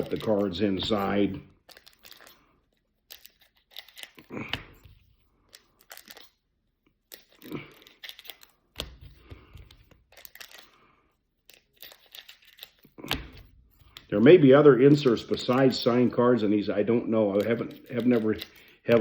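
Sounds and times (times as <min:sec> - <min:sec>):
wrappers crinkling: 0:00.0 - 0:04.8, 0:05.4 - 0:06.4, 0:07.1 - 0:08.8, 0:09.7 - 0:13.2, 0:17.0 - 0:19.0.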